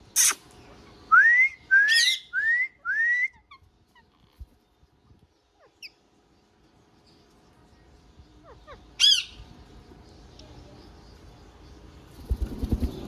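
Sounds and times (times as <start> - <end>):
parrot whistling: 1.2 - 3.4.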